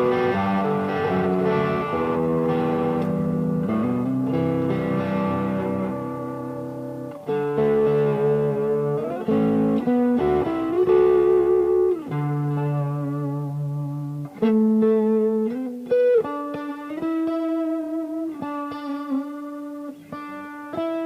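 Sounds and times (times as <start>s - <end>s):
electric guitar notes and chords: 0.0s - 21.0s.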